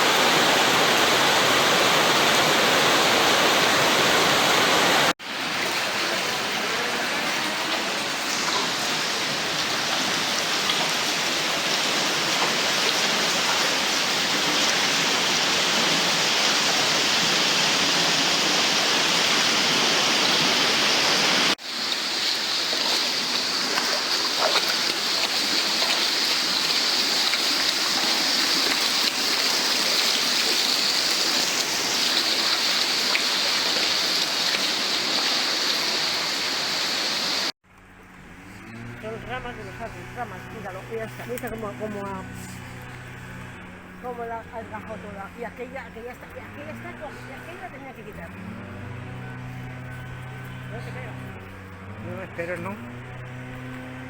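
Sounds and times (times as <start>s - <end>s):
torrential rain pouring: 0.0s - 37.6s
water rushing and running off: 0.0s - 37.6s.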